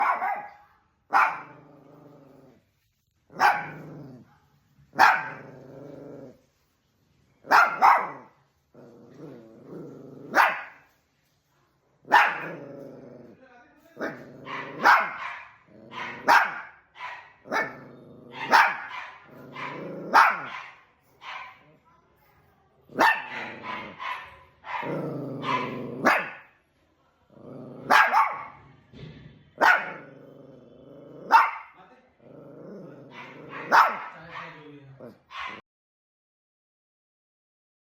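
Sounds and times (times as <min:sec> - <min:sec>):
dogs barking: 0:00.0 - 0:01.7, 0:03.3 - 0:04.0, 0:04.9 - 0:05.6, 0:07.5 - 0:08.4, 0:10.2 - 0:10.9, 0:12.1 - 0:12.8, 0:14.0 - 0:21.7, 0:22.9 - 0:26.6, 0:27.8 - 0:28.6, 0:29.6 - 0:30.3, 0:31.2 - 0:31.8, 0:33.0 - 0:34.6, 0:35.3 - 0:35.6
dogs growling: 0:01.2 - 0:04.4, 0:05.0 - 0:06.5, 0:07.5 - 0:10.8, 0:12.1 - 0:13.4, 0:14.0 - 0:16.6, 0:17.4 - 0:20.6, 0:22.9 - 0:26.5, 0:27.3 - 0:28.6, 0:29.6 - 0:35.6.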